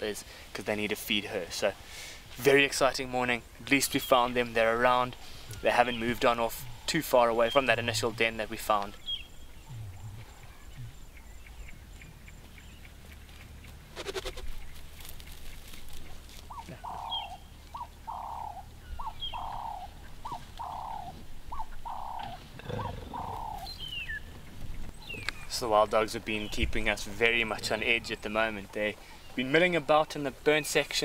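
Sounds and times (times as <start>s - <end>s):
bird calling paired notes: 3.7s - 13.0s, 16.4s - 24.4s.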